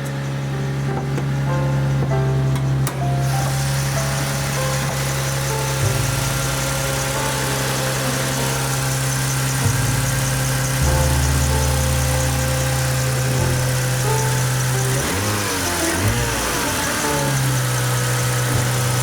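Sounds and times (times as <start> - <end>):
steady ticking beat: 5.8 - 19.0
stepping bass line: 5.8 - 19.0
sustained synth tones: 8.0 - 19.0.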